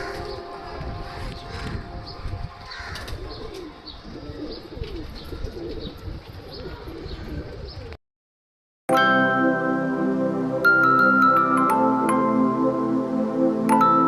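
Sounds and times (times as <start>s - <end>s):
music: 0.0s - 3.2s, 8.9s - 14.0s
pigeons cooing: 0.0s - 8.0s.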